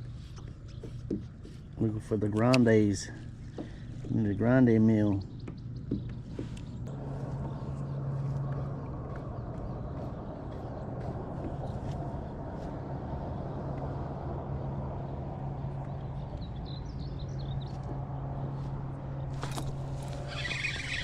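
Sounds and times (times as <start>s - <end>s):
steady low hum: 0.0s - 21.0s
bird chirping: 2.6s - 6.8s, 19.2s - 21.0s.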